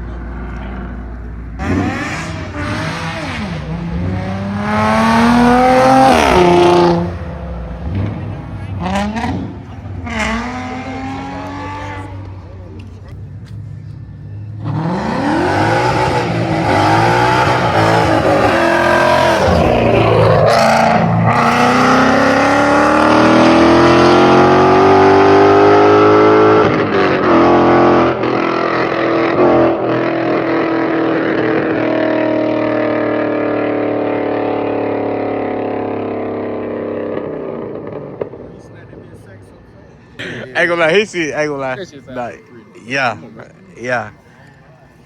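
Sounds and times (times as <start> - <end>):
car engines accelerating hard: 0.0 - 45.0.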